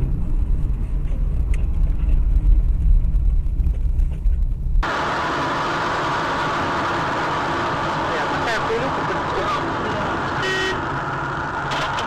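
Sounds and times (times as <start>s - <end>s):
car engine and road rumble: 0.0s - 12.0s
hissing road noise: 4.8s - 12.0s.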